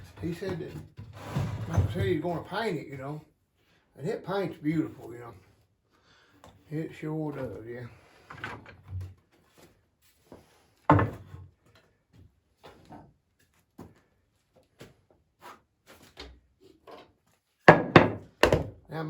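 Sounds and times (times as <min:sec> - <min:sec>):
wooden boards knocking: 0:10.9 - 0:11.3, 0:17.7 - 0:18.8.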